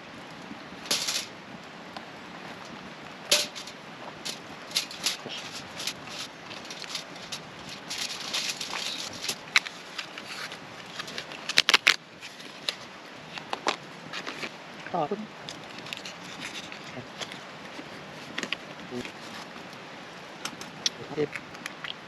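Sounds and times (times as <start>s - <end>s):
low steady hiss: 0.0s - 22.0s
cooking utensils clicking: 3.3s - 3.7s.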